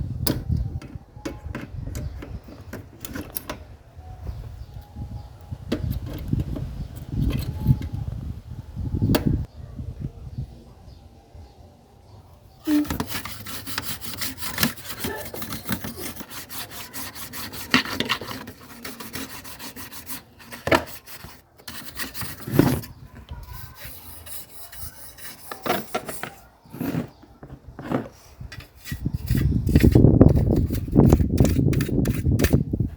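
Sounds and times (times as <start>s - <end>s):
scrubbing against a hard surface: 12.7s - 32.6s.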